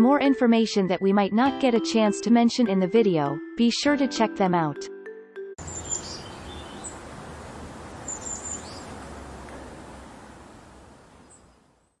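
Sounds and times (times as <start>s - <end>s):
short high bird chirps: 5.6s - 7.0s, 8.0s - 8.9s
steady background hiss: 5.6s - 12.0s.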